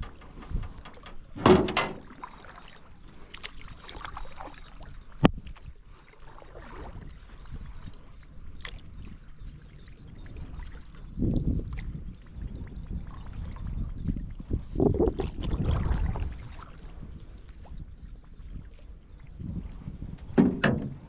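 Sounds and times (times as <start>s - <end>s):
paddle strokes splashing water: 2.0s - 13.7s, 14.8s - 17.7s.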